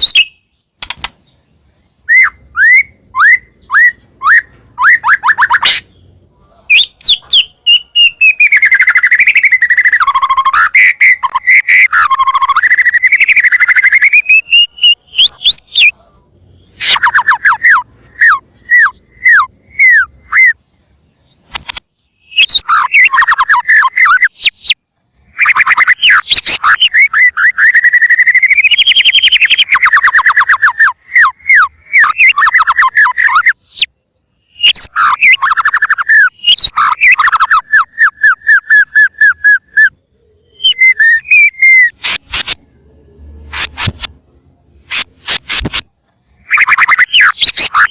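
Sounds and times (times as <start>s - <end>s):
bird singing whistles and trills: 0.0s - 1.4s, 2.0s - 16.0s, 16.6s - 20.6s, 21.3s - 45.5s, 46.4s - 47.9s.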